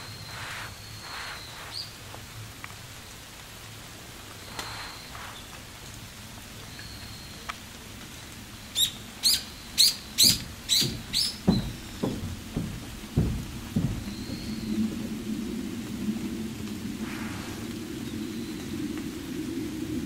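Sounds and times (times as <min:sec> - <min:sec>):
steady outdoor hiss: 0:00.0 - 0:20.0
bird calling with sharp notes: 0:08.7 - 0:14.8.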